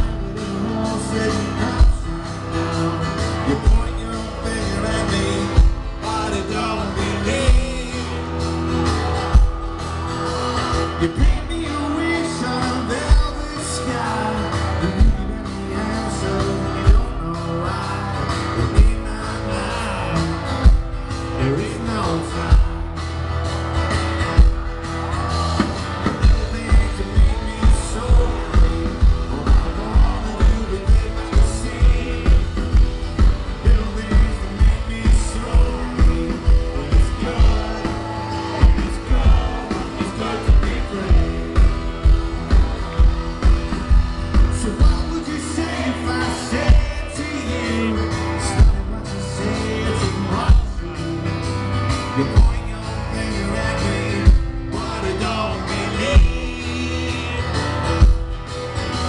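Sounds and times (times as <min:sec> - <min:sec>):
man singing: 0:00.0 - 0:23.3, 0:25.7 - 0:59.0
guitars: 0:00.0 - 0:59.0
drum kit: 0:04.8 - 0:13.6, 0:23.6 - 0:51.0, 0:54.2 - 0:59.0.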